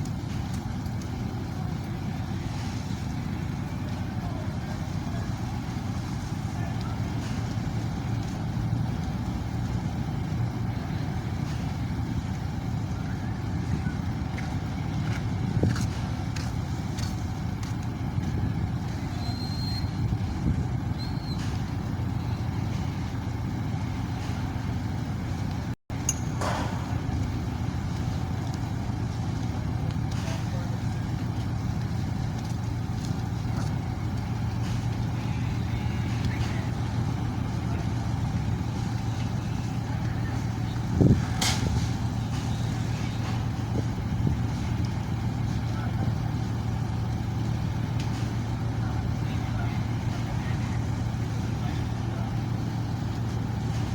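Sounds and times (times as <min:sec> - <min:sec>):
low engine rumble: 0:00.0 - 0:53.9
high whistle-like tone: 0:19.2 - 0:20.0.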